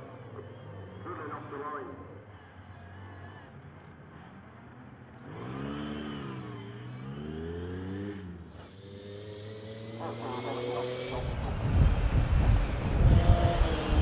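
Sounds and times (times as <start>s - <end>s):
rally car engine revving: 5.2s - 14.0s.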